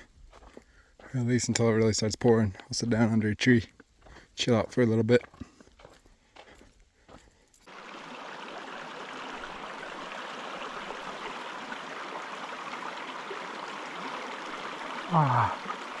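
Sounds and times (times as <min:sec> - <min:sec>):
creek rushing over rocks: 0:07.7 - 0:16.0.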